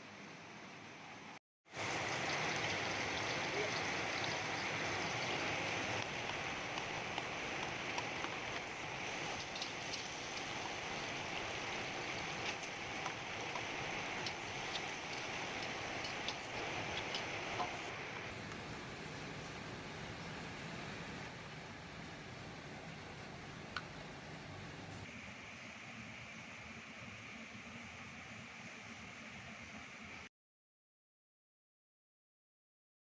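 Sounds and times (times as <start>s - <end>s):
food sizzling in a pan: 1.7s - 18.1s.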